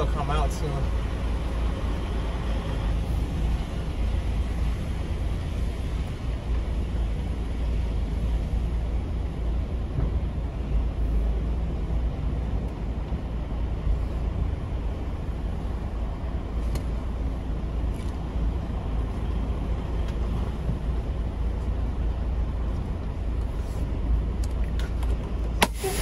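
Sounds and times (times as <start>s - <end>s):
diesel truck engine rumble: 0.0s - 26.0s.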